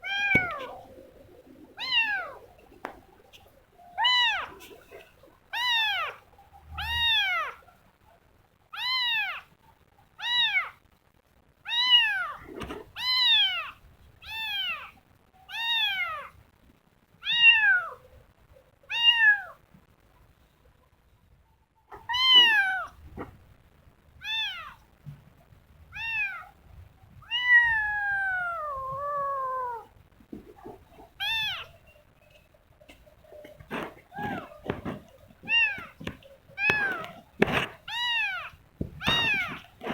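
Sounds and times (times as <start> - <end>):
kitten meowing: 5.6 - 6.2, 8.8 - 9.5, 10.2 - 10.8, 11.7 - 12.4, 13.0 - 14.9, 15.5 - 16.3, 21.9 - 23.0, 24.2 - 24.8, 25.9 - 26.5, 27.2 - 29.9, 31.2 - 31.8, 34.1 - 39.9.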